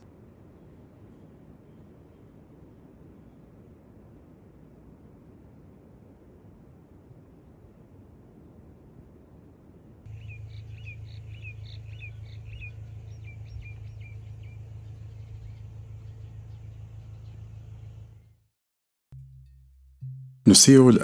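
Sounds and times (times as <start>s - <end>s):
small bird chirping: 10.1s - 18.4s
low rumble: 10.1s - 18.5s.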